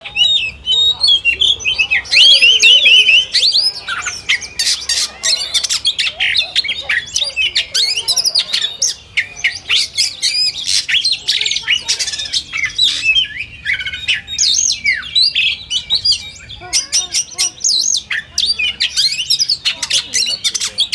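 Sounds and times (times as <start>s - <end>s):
birds singing whistles and trills: 0.0s - 20.9s.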